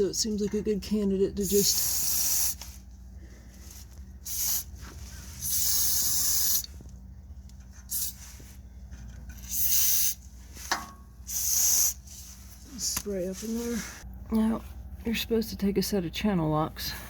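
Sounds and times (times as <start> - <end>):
aerosol can spraying: 1.4 - 2.7, 4.2 - 4.8, 5.4 - 6.7, 7.9 - 8.3, 9.4 - 10.2, 11.3 - 12.1.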